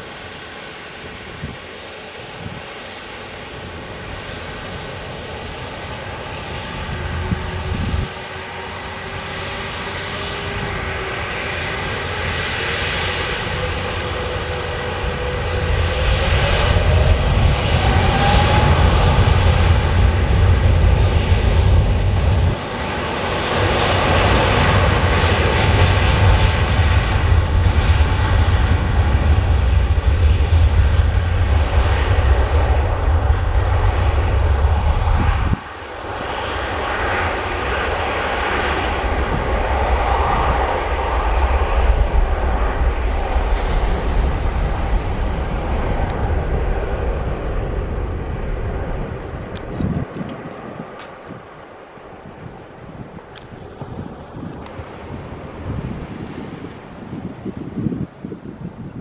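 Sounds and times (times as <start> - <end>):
jet engine deep rumble: 0.0 - 59.0
jet engine whine: 0.0 - 59.0.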